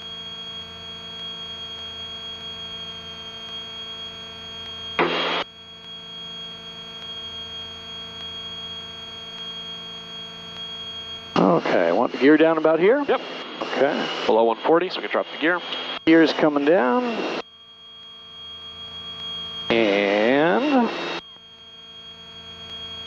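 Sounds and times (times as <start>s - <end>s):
electrical hum with high whine: 0.0s - 23.0s
burst of radio static: 5.0s - 5.4s, 11.4s - 17.4s, 19.7s - 21.2s
aircraft engine noise: 11.2s - 17.4s, 19.6s - 21.2s.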